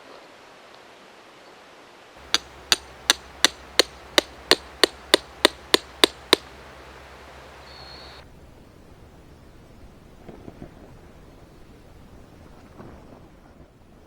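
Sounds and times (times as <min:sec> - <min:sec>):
hammer blows on something hard: 0:02.2 - 0:08.2.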